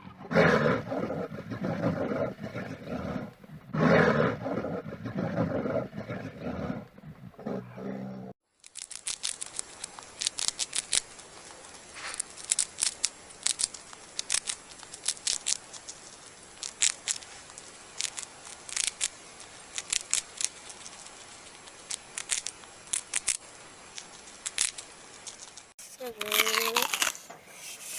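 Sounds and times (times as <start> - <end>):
big cat roaring: 0.0 - 8.4
faint hiss: 8.5 - 26.3, 27.2 - 27.9
sharp clicks and snips: 8.6 - 27.3.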